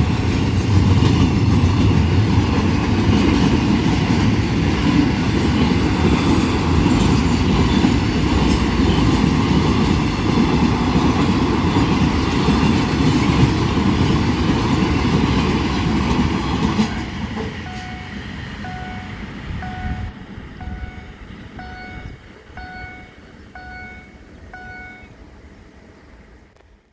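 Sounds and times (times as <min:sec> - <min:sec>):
passenger train wheels clattering: 0:00.0 - 0:25.0
level crossing warning bell: 0:16.5 - 0:25.2.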